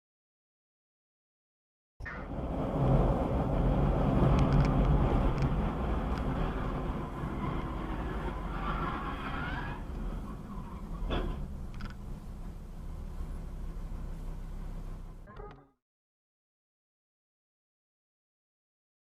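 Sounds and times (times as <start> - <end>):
car engine and road noise: 2.0 - 15.3.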